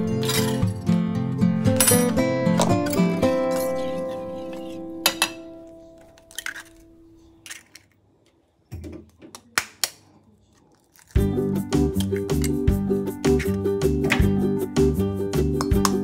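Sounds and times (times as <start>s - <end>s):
plucked guitar music: 0.0s - 6.3s, 11.2s - 16.0s
metal spoon clinking on steel bowl: 1.8s - 5.5s
eggs tapped and cracked: 8.7s - 10.0s, 15.6s - 16.0s.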